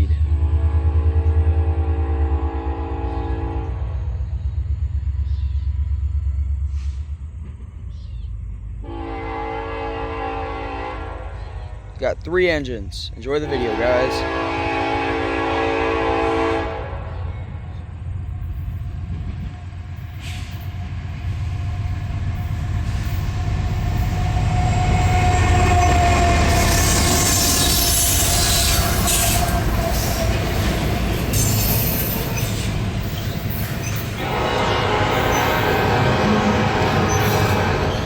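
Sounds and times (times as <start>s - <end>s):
locomotive engine rumble: 0.0s - 38.0s
train wheels on rail: 3.0s - 9.0s, 11.3s - 38.0s
wheel squeal: 24.0s - 34.2s, 36.9s - 38.0s.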